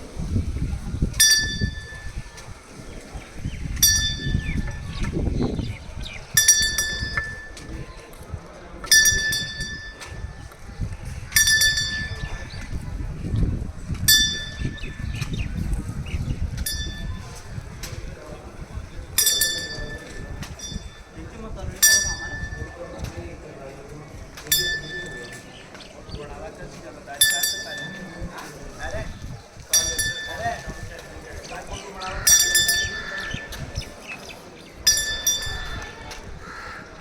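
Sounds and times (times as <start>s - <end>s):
small metal bell ringing: 3.8s - 4.8s, 6.4s - 7.8s, 8.8s - 10.3s, 11.4s - 12.6s, 14.1s - 15.2s, 16.6s - 17.4s, 19.2s - 21.1s, 21.8s - 22.8s, 24.5s - 25.5s, 27.2s - 28.4s, 29.7s - 31.1s, 32.3s - 33.8s, 34.9s - 36.1s.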